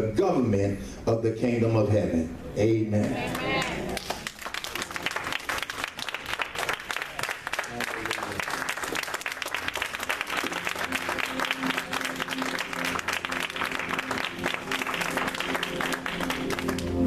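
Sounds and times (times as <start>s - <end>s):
congregation clapping: 3.0s - 17.0s.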